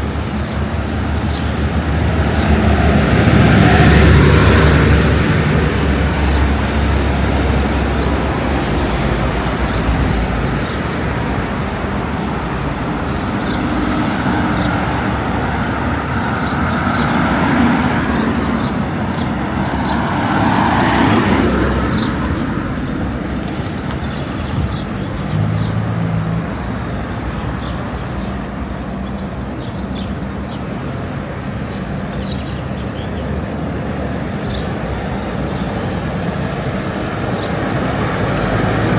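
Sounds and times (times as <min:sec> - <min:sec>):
steady traffic rush: 0:00.0 - 0:38.9
vehicle passing: 0:00.7 - 0:28.2.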